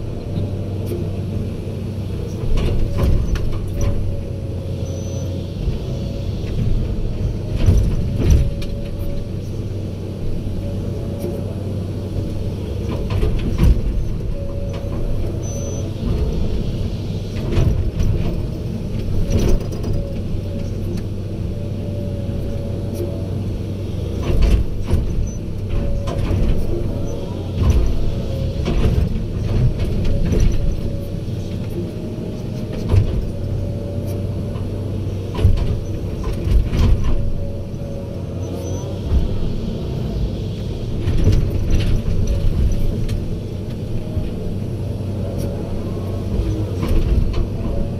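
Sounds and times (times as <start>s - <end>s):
diesel machinery running: 0.0s - 47.9s
clanks and knocks: 35.3s - 37.4s.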